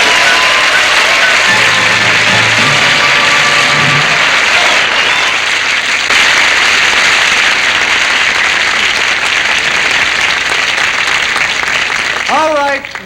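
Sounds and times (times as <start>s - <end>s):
band music: 0.0s - 6.2s
studio audience applauding: 0.0s - 13.0s.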